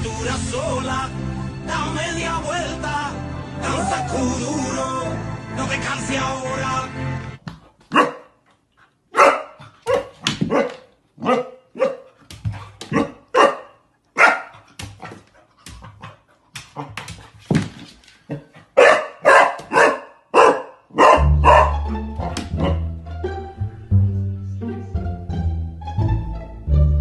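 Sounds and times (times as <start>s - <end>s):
dog barking: 7.9s - 8.4s, 9.1s - 12.2s, 12.9s - 15.2s, 18.3s - 22.8s.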